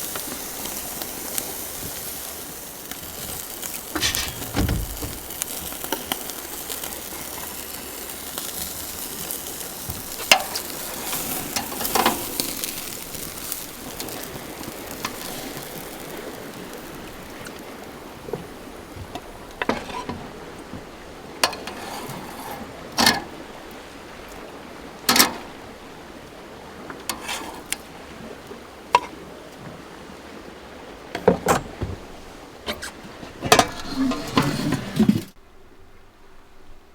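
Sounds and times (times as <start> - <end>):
food sizzling on a grill: 0.0 - 24.1, 24.8 - 26.1
cooking utensils clinking and scraping: 3.7 - 6.2, 10.1 - 14.3, 21.4 - 23.3, 32.7 - 35.4.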